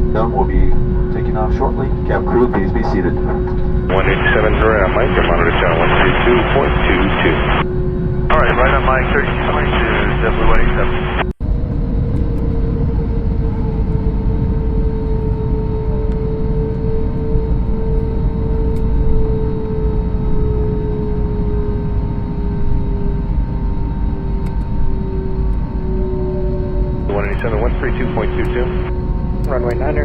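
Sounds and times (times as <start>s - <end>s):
jet engines rumbling in cabin: 1.3s - 7.6s, 8.3s - 11.3s, 27.1s - 28.9s.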